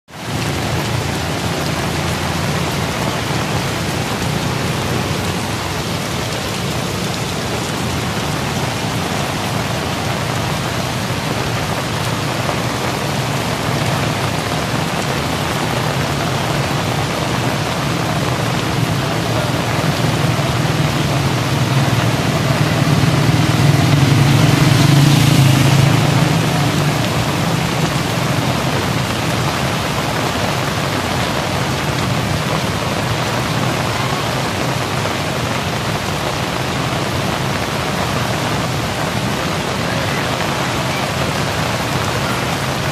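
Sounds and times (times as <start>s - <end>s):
heavy rain spattering: 0.1s - 42.9s.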